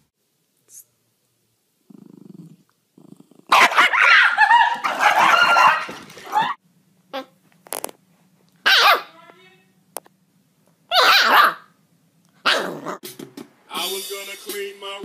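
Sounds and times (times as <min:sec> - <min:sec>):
dog barking and yipping: 0:03.5 - 0:06.6, 0:08.6 - 0:09.1, 0:10.9 - 0:11.8, 0:12.4 - 0:13.0.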